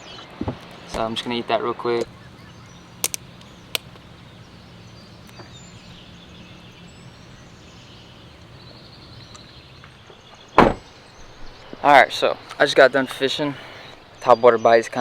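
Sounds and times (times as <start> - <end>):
faint bird calls: 0.0 - 14.7
outdoor background noise: 0.0 - 15.0
sharp clicks: 3.0 - 4.0
loud short knock: 10.6 - 10.8.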